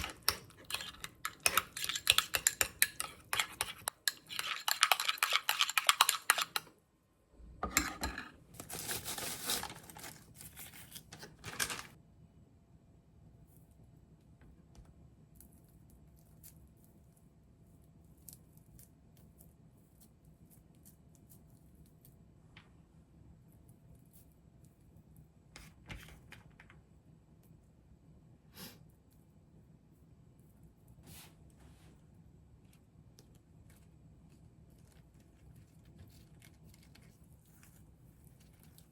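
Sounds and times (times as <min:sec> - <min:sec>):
utensils clicking against a dish: 0:00.0 - 0:06.7.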